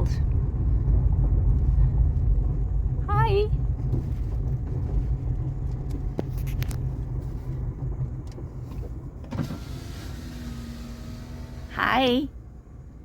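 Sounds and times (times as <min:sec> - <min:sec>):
gusty wind buffeting microphone: 0:00.0 - 0:09.2.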